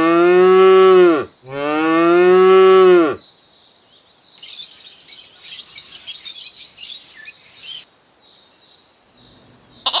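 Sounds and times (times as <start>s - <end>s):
small birds chirping: 3.2s - 10.0s.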